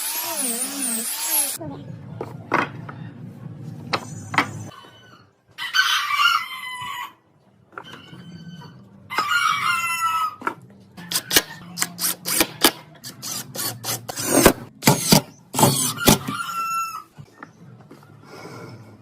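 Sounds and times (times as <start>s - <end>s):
rooster crowing: 5.6s - 7.2s.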